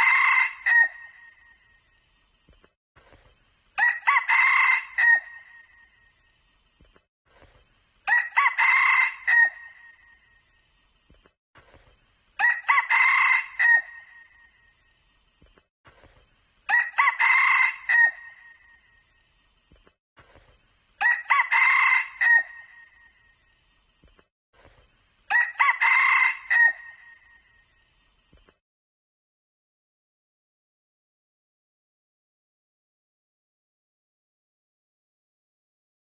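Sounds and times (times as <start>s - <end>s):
rooster crowing: 0.0s - 1.4s, 3.8s - 5.7s, 8.1s - 10.1s, 12.4s - 14.5s, 16.7s - 18.8s, 21.0s - 23.1s, 25.3s - 27.4s.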